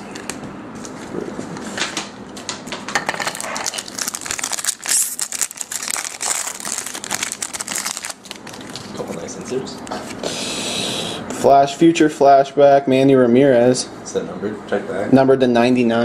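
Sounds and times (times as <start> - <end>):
foil wrapper crinkling: 3.1 - 10.2
wrapper tearing: 3.2 - 9.3.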